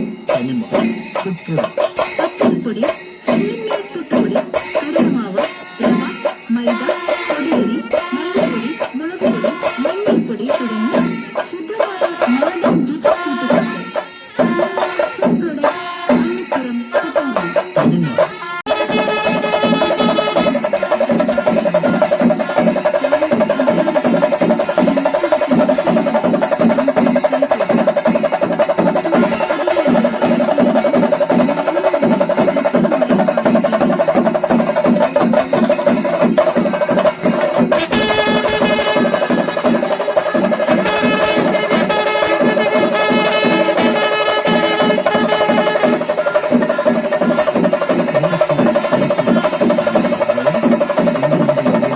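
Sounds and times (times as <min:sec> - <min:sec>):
drums in fast strokes: 0:00.0 - 0:51.9
held wind instrument note: 0:18.1 - 0:21.6, 0:36.5 - 0:47.8.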